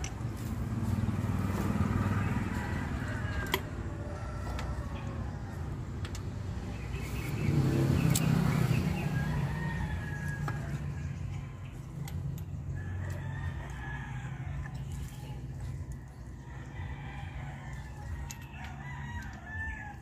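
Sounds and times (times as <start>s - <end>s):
rooster crowing: 1.7s - 5.9s, 8.6s - 11.6s, 12.7s - 14.9s, 16.2s - 20.0s.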